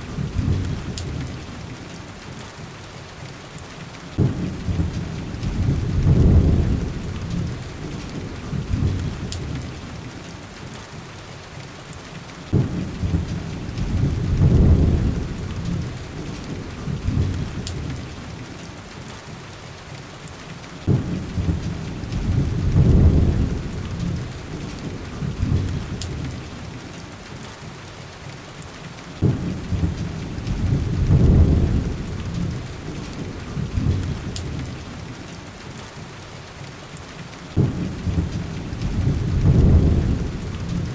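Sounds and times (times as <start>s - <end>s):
faint wood fire crackles: 0.0s - 40.9s
heavy rain on window glass: 0.0s - 40.9s
low rolling thunder: 0.1s - 1.7s, 4.2s - 10.1s, 12.5s - 18.4s, 20.8s - 26.8s, 29.2s - 35.1s, 37.5s - 40.9s.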